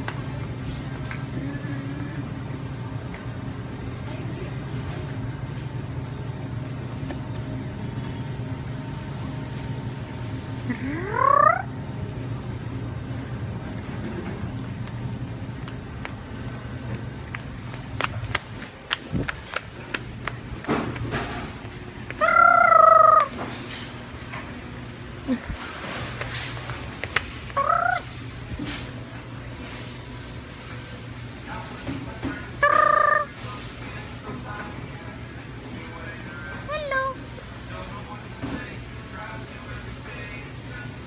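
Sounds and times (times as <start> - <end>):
steady low hum: 0.0 - 41.0
bird calling: 10.9 - 11.7, 22.2 - 23.4, 27.5 - 28.2, 32.5 - 33.4.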